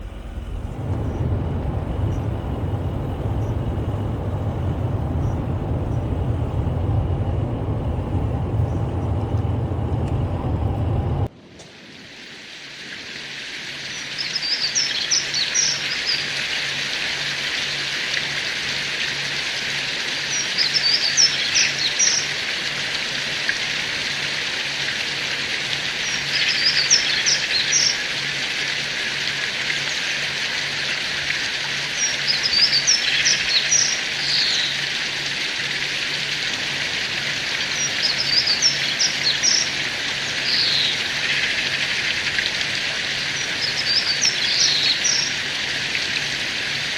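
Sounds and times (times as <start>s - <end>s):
songbirds chirping: 0.0s - 11.3s
wind rumbling: 0.0s - 11.4s.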